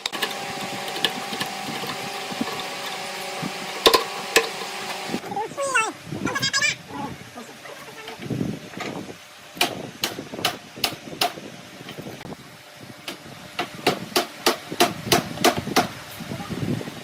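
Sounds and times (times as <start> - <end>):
hammer striking wood: 9.6 - 11.4.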